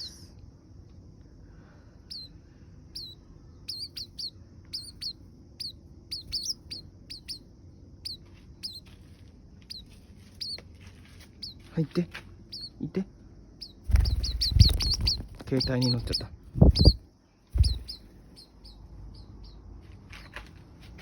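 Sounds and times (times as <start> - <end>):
bird chirping: 2.0 - 8.9, 9.6 - 10.6, 11.4 - 20.4
steady low hum: 12.2 - 19.9.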